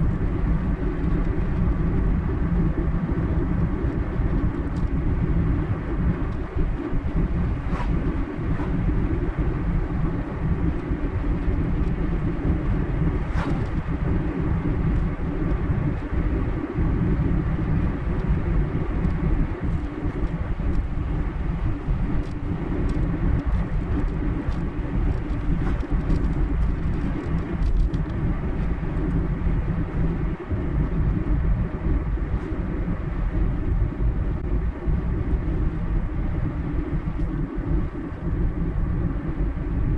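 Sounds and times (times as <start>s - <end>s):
car engine rumble: 0.0s - 39.8s.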